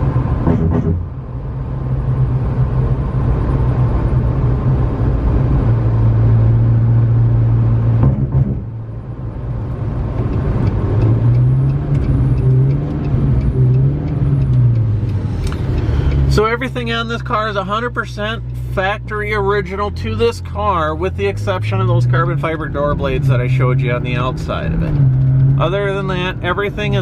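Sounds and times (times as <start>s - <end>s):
sports car engine revving: 9.6s - 27.0s.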